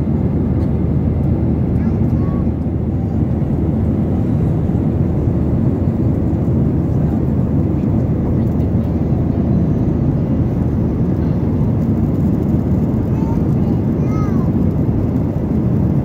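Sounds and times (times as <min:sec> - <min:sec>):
airliner cabin rumble: 0:00.0 - 0:16.0.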